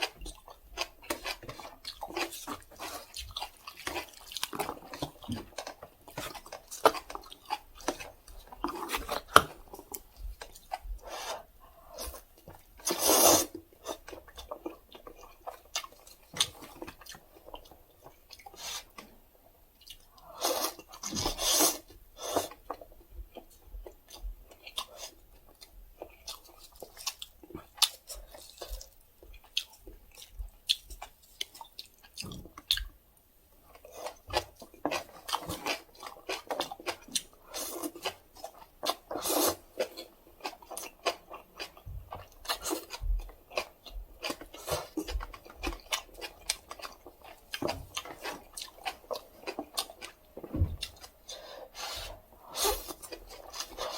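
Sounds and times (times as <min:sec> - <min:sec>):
wet chewing with mouth clicks: 0:00.0 - 0:53.9
noodle slurps: 0:12.8 - 0:13.6, 0:39.1 - 0:39.7.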